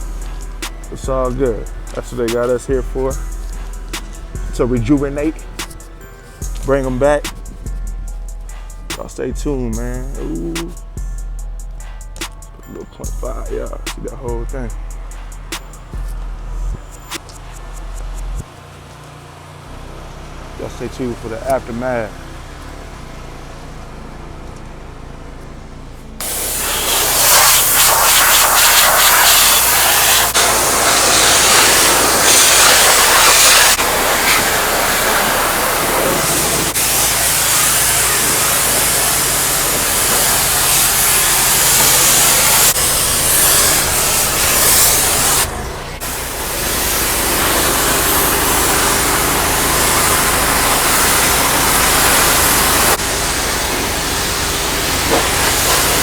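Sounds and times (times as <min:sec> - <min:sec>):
pressure washer spraying water: 0:00.0 - 0:24.6, 0:26.2 - 0:56.0
engine and pump humming: 0:00.0 - 0:56.0.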